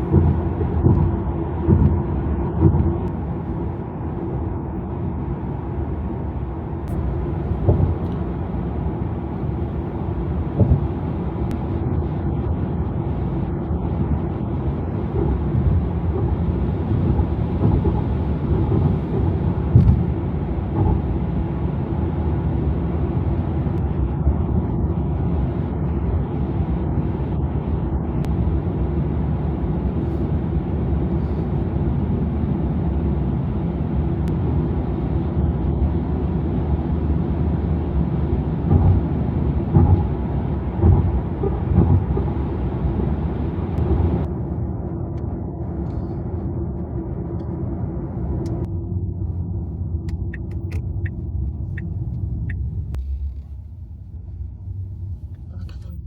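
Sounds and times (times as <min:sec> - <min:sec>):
car tyre and road noise: 0:00.0 - 0:56.0
brief thumps: 0:06.8 - 0:08.5, 0:10.4 - 0:11.6.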